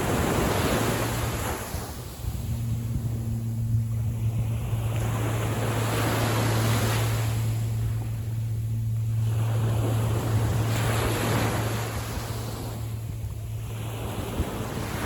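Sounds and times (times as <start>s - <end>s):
low hum: 0.0s - 15.0s
sea water washing in: 0.0s - 15.0s.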